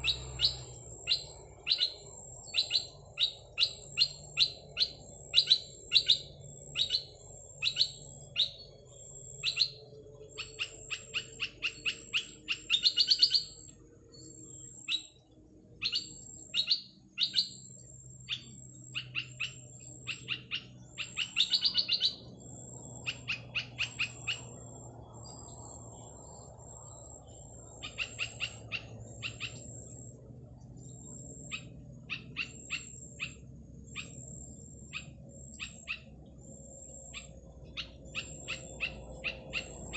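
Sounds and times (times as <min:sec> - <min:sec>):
small bird chirping: 0:00.0 - 0:39.9.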